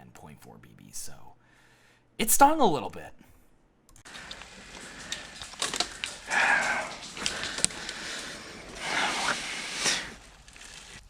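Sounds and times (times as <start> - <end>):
person breathing noisily: 1.4 - 2.1, 4.1 - 10.3
sharp clicks: 3.9 - 9.3.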